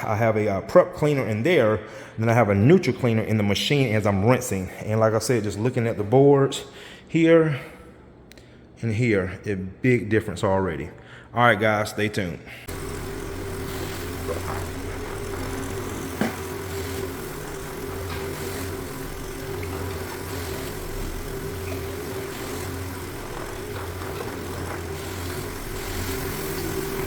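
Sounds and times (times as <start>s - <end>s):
floor machine motor hum: 12.7s - 27.0s.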